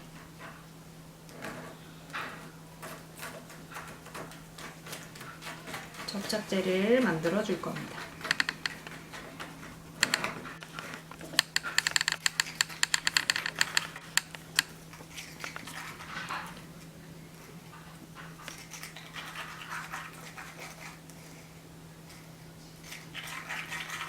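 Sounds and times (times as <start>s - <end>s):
stick clicking in paper cup: 6.0s - 14.7s.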